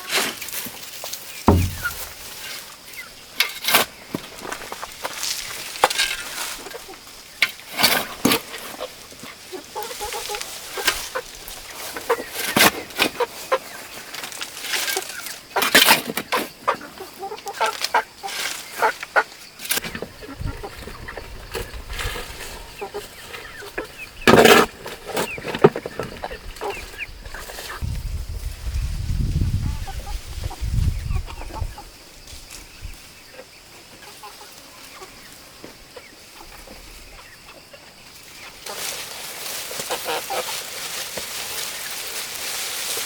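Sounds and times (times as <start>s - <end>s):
chickens clucking: 0.8s - 3.2s, 5.4s - 28.1s, 29.6s - 42.9s
knocks and scrapes of hand work: 1.5s - 2.4s.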